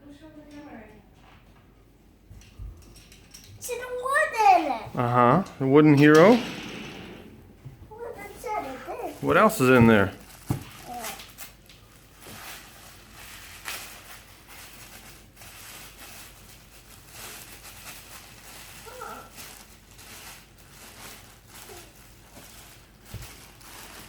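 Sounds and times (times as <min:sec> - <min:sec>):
packing paper rustling: 0:08.0 - 0:24.0.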